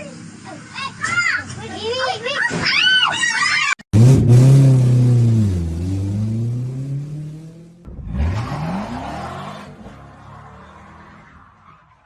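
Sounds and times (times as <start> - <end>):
car engine revving: 3.9 - 11.5.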